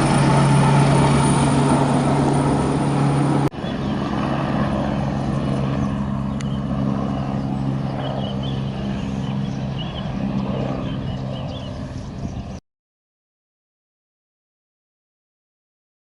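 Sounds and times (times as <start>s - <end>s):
helicopter engine and rotor hum: 0.0s - 12.6s.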